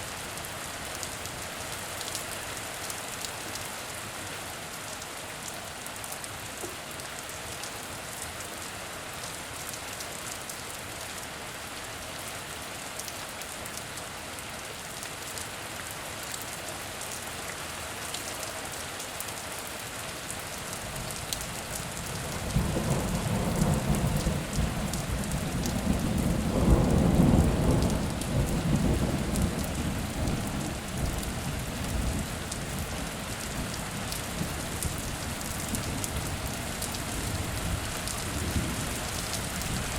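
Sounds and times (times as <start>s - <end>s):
heavy rain falling: 0.1s - 39.9s
low roll of thunder: 22.5s - 31.2s.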